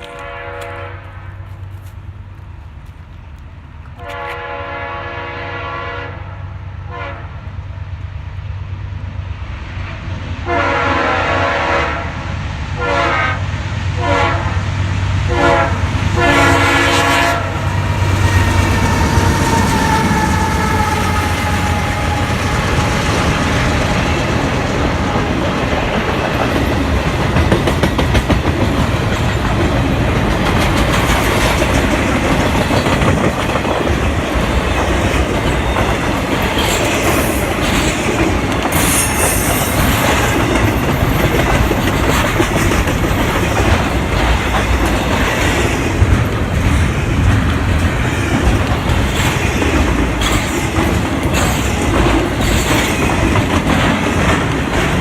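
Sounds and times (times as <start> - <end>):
train wheels clacking over rail joints: 16.2 - 55.0
high wheel squeals: 17.7 - 24.3, 38.7 - 40.4.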